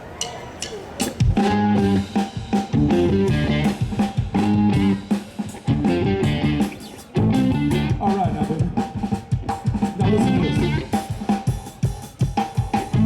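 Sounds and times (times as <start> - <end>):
drum kit: 0.1 - 13.0
band playing guitar riff: 0.8 - 13.0.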